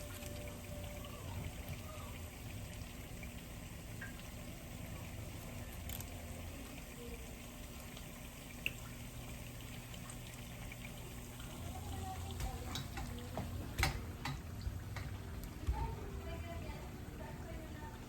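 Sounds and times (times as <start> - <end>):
oil popping and clicking: 7.8 - 15.9.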